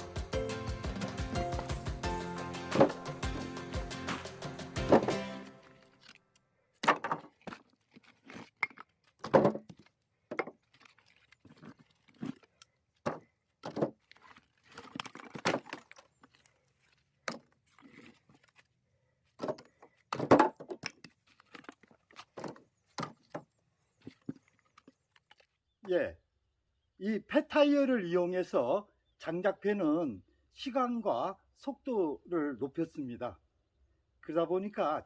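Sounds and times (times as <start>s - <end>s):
wooden knocks and thunks: 2.7s - 3.4s, 4.8s - 5.3s, 6.8s - 7.6s, 8.7s - 10.6s, 13.0s - 14.0s, 19.4s - 24.9s.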